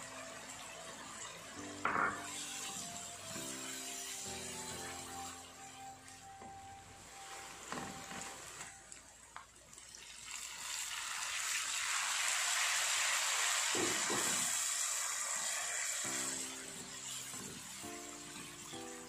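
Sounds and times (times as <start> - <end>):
background music: 0.0 - 9.0, 15.2 - 19.0
spice paste sizzling in oil: 0.0 - 19.0.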